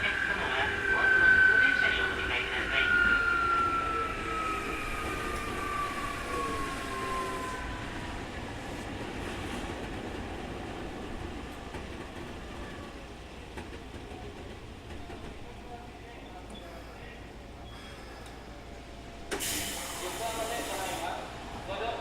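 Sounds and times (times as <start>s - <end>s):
train running noise: 0.0s - 22.0s.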